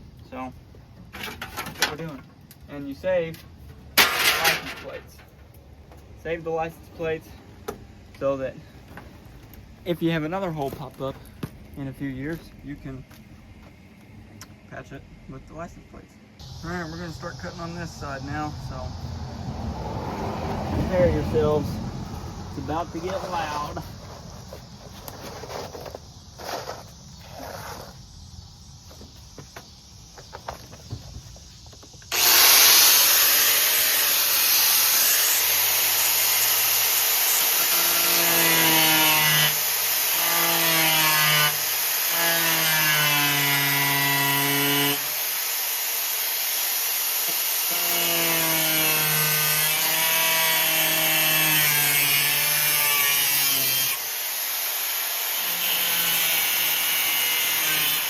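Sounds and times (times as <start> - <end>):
power tool cutting sheet metal: 32.1 - 58.0.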